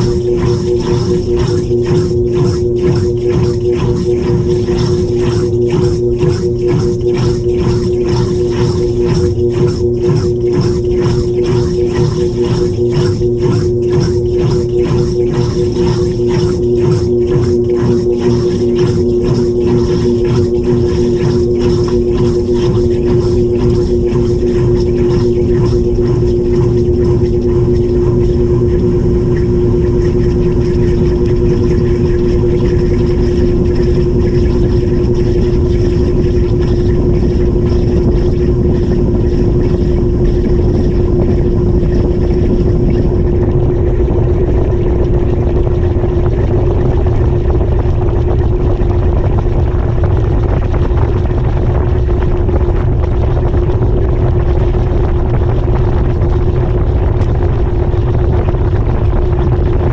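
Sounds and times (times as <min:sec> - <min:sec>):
faint high whine: 0:00.0 - 0:48.9
washing machine droning: 0:00.0 - 0:59.9.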